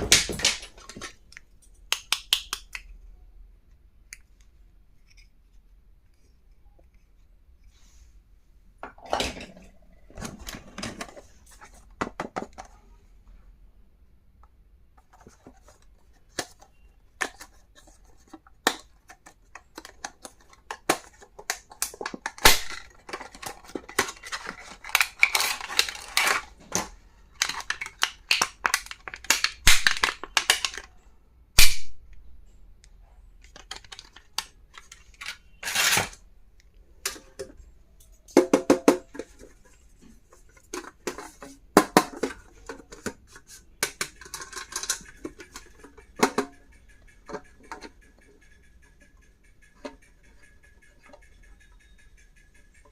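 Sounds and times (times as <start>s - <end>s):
clicks and taps: 0.3s - 3.0s, 36.6s - 52.9s
plastic packaging crinkling: 19.7s - 30.9s.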